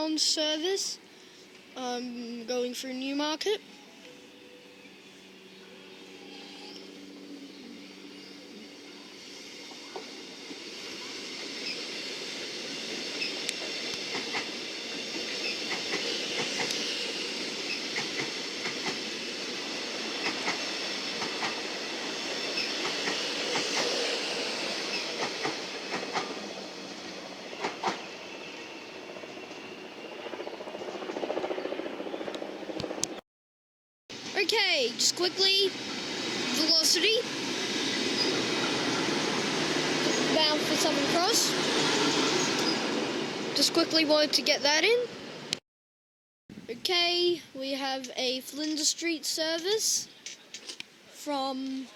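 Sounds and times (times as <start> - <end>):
electric train passing: 0.0 - 33.2, 34.1 - 45.6
wheels clicking on track: 13.1 - 16.9.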